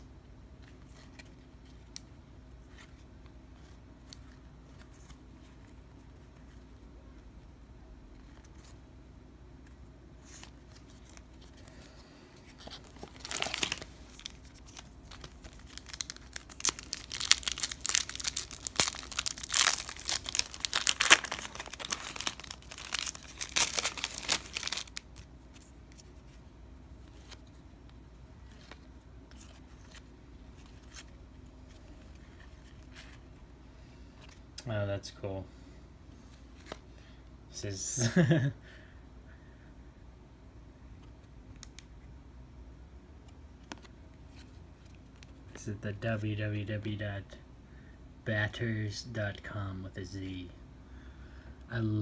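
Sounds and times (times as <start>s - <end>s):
wrapper tearing and crinkling: 12.6s - 25.3s
faint clicks of cards handled: 43.2s - 45.6s.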